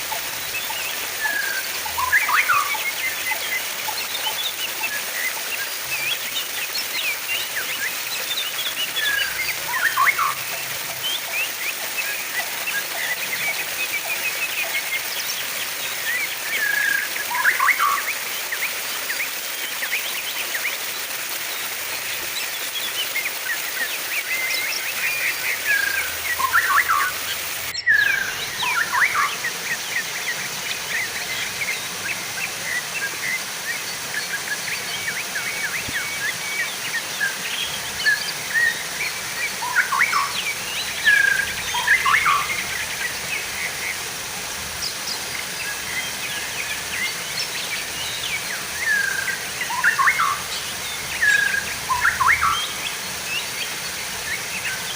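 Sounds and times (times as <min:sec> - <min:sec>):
running water hiss: 0:00.0 - 0:54.9
small birds chirping: 0:00.0 - 0:54.9.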